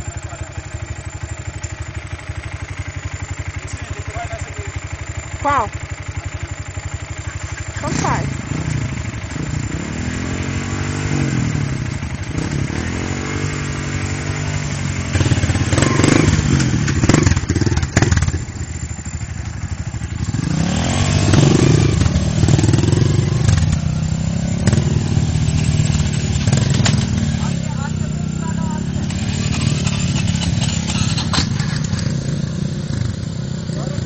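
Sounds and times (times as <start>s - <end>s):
dirt bike engine revving: 3.5s - 34.0s
sharp knocks and clatter: 24.6s - 27.4s, 29.0s - 32.4s.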